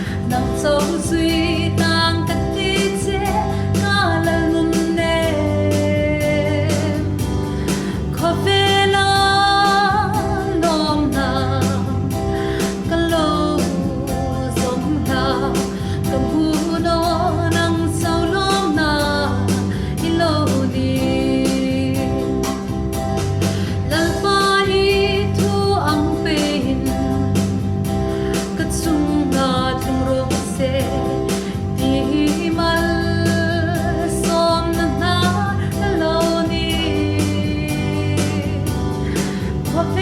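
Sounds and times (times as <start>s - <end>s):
guitar: 0.0s - 40.0s
person singing: 0.0s - 40.0s
steady beat: 0.0s - 40.0s.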